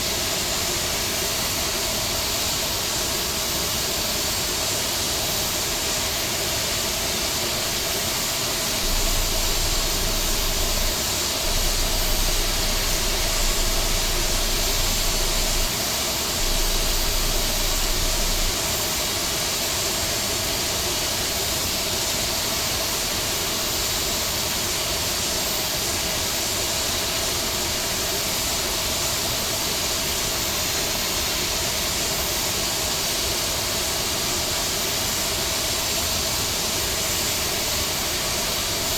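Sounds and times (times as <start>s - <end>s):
low rumble: 8.8s - 18.6s.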